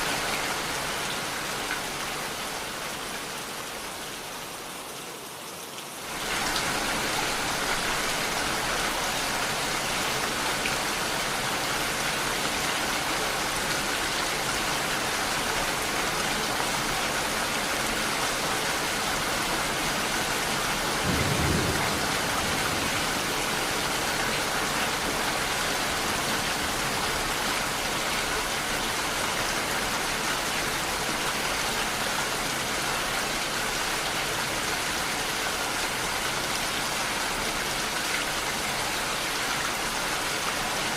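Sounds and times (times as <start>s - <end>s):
steady rain falling: 0.0s - 40.9s
low rumble of thunder: 20.8s - 25.1s.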